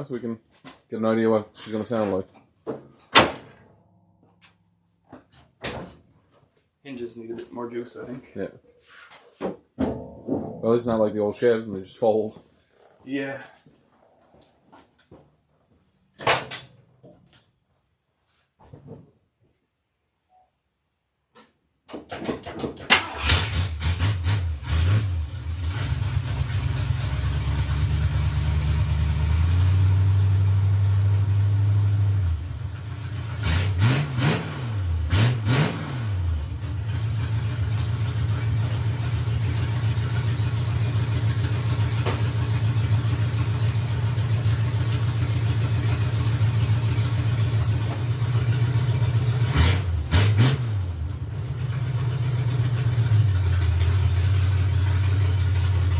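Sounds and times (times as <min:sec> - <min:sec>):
truck engine starting and revving: 0:22.9 - 0:55.9.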